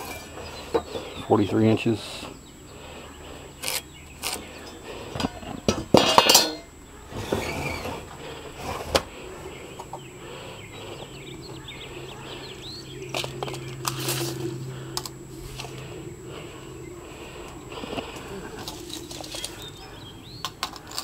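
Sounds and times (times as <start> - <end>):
metal clinks and knocks: 4.6 - 6.7
metal clatter: 5.2 - 8.0
faint bird chirps: 9.2 - 15.0, 15.7 - 21.0.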